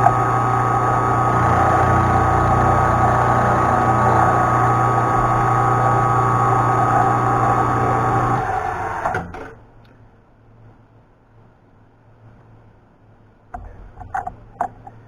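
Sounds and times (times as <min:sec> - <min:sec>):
milling machine whine: 0:00.0 - 0:09.6.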